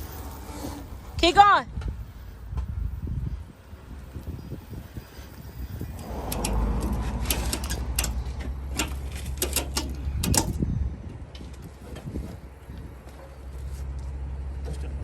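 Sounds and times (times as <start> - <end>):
vehicle engine rumble: 0.0 - 15.0
clanks and rattles: 6.0 - 13.5.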